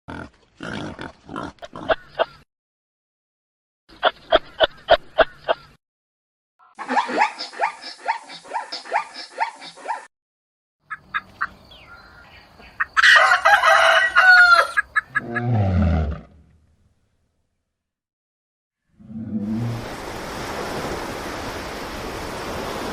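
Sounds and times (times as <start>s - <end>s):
chickens clucking: 10.9s - 15.4s
rooster crowing: 13.0s - 14.9s.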